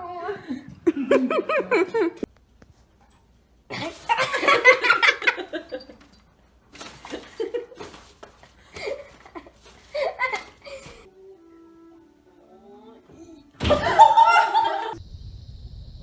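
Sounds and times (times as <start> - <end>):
hearty human laughter: 0.3 - 2.3, 3.7 - 6.2, 7.0 - 11.1, 13.6 - 15.0.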